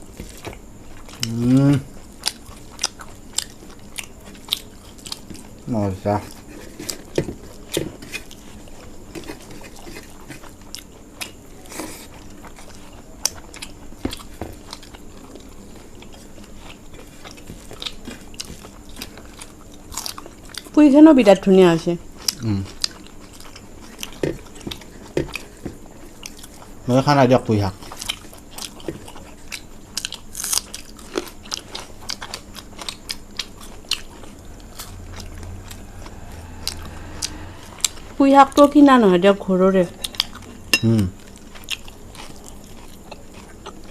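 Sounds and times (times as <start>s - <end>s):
chewing crunchy fried food: 0.0s - 20.8s, 22.0s - 38.7s, 39.8s - 43.9s
low hum: 33.3s - 40.8s.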